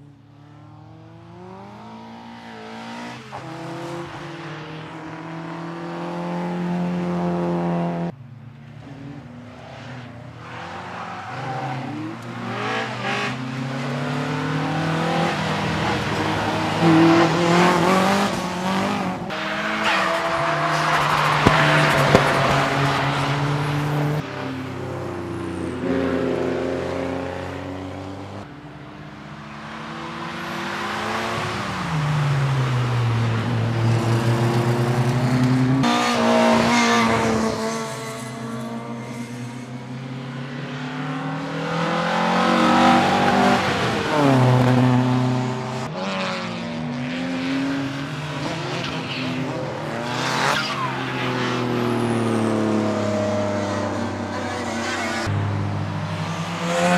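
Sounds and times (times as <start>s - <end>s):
race car engines revving: 0.0s - 56.9s
tyre squeal: 19.3s - 24.2s.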